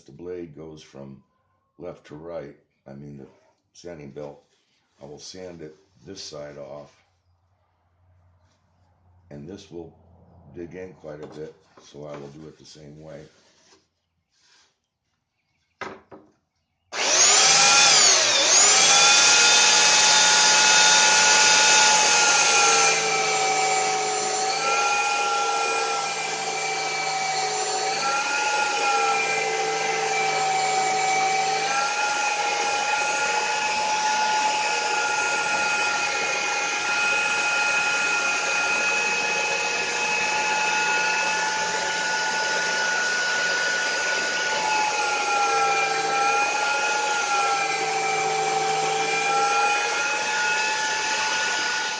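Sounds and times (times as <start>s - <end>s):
belt sander whining: 16.9s - 51.9s.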